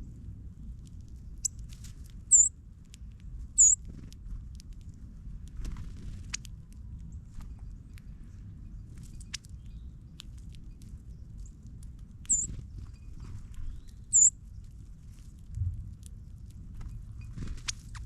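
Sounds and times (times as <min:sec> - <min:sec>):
low rumble: 0:00.0 - 0:18.0
birds pecking at seed: 0:00.1 - 0:18.0
high bird chirps: 0:03.6 - 0:03.8, 0:12.3 - 0:12.6, 0:13.7 - 0:14.3.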